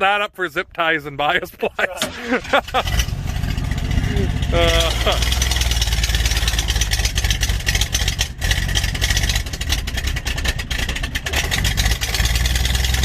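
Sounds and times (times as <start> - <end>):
vehicle engine running loudly: 2.6 - 13.0.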